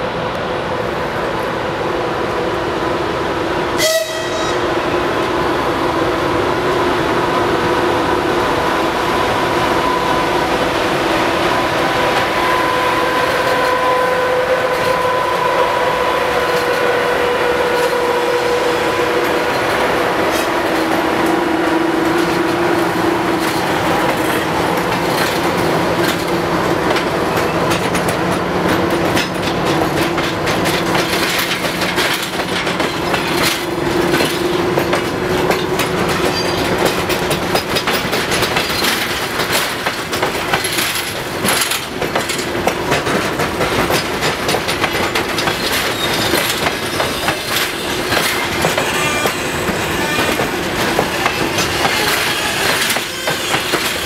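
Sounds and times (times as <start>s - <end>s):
train passing rumble: 0.0s - 54.0s
train whine: 0.0s - 54.0s
wheels clattering over rail joints: 22.0s - 54.0s.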